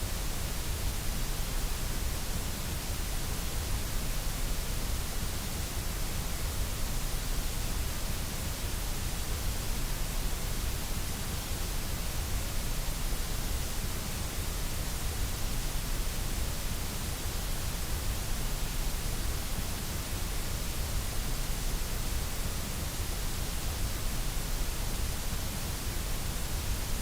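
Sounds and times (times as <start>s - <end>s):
white noise hiss: 0.0s - 27.0s.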